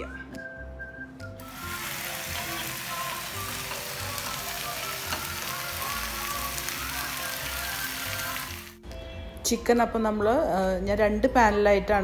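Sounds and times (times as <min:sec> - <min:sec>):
soft background music: 0:00.0 - 0:12.0
chicken sizzling in oil: 0:01.4 - 0:08.8.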